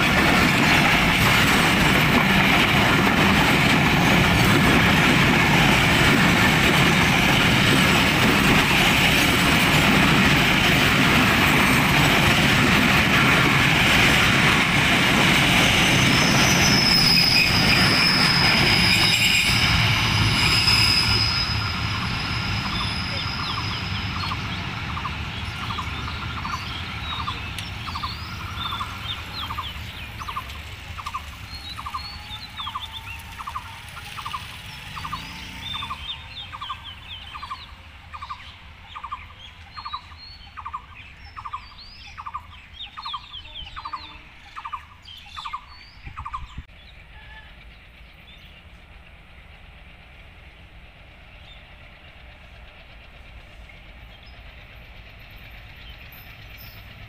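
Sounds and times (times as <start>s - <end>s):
distant train rumble: 0.0s - 57.0s
birds chirping: 20.3s - 49.5s.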